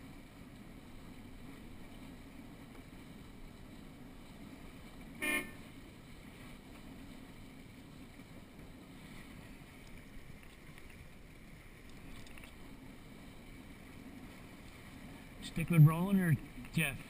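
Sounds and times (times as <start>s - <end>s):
water noise: 0.0s - 17.0s
wind: 0.0s - 17.0s
short horn blast: 5.2s - 5.7s.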